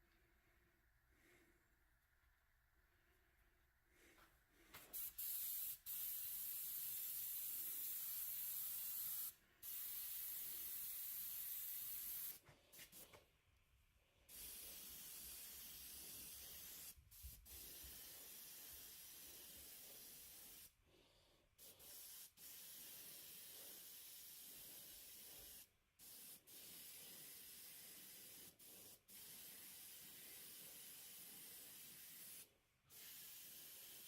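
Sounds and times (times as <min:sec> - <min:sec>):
spray paint hissing: 0:04.9 - 0:13.2, 0:14.3 - 0:20.7, 0:21.6 - 0:34.0.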